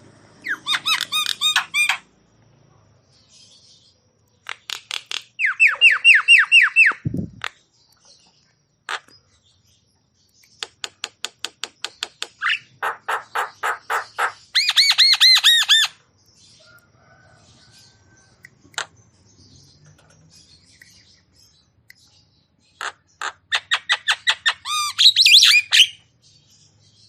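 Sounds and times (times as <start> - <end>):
soft bird chatter: 0.1 - 27.0
bird calling harsh notes: 0.4 - 2.0.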